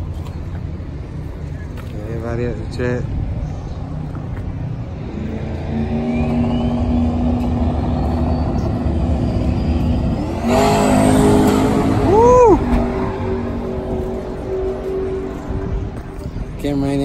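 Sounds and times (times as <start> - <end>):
car engine accelerating: 4.8 - 16.3
high whine rising in pitch: 5.0 - 16.0.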